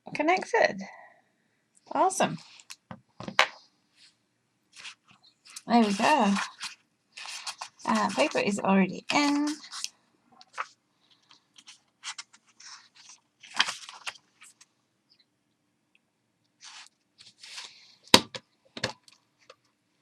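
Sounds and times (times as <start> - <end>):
plastic and paper rustling: 4.8 - 14.7.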